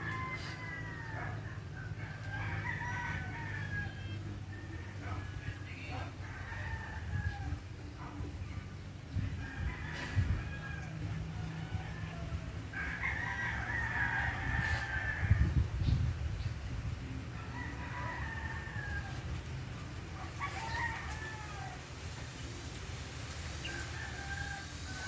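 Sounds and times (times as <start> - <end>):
rooster crowing: 0.0 - 7.6, 9.2 - 15.8, 17.3 - 22.2, 23.6 - 25.0
wind rumble on microphone: 1.2 - 25.0.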